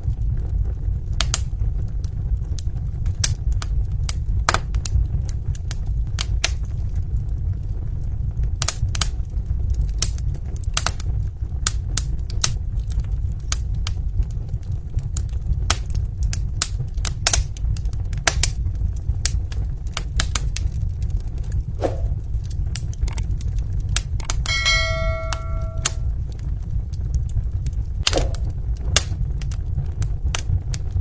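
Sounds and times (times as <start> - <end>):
wood fire crackling: 0.0 - 31.0
brief ringing tone: 24.5 - 26.0.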